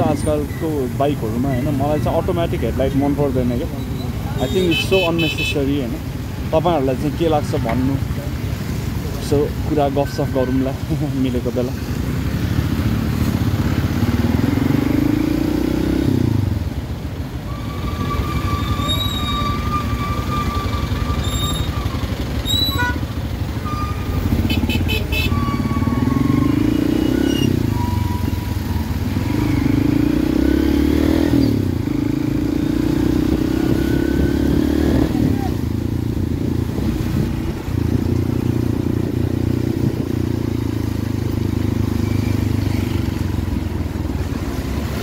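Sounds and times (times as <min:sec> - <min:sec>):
wind and road noise: 0:00.0 - 0:45.0
motorcycle engine accelerating: 0:12.1 - 0:16.6, 0:25.6 - 0:43.6.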